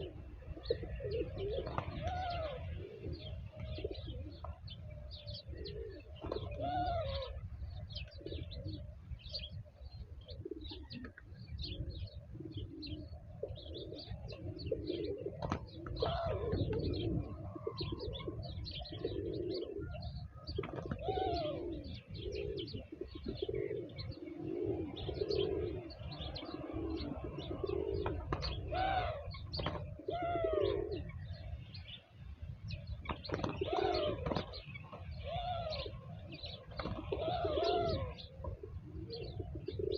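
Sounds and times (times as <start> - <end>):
pigeons cooing: 0.0 - 39.9
small birds chirping: 0.0 - 39.9.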